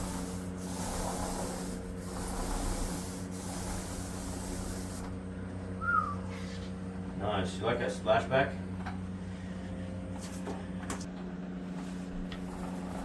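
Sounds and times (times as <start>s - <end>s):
paint roller rubbing on wall: 0.0s - 5.2s, 11.6s - 13.0s
steady low hum: 0.0s - 13.0s.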